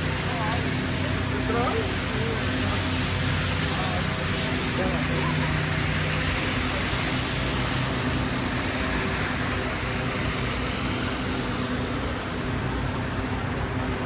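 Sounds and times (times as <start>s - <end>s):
road noise: 0.0s - 14.0s
vehicle engines humming: 0.0s - 14.0s.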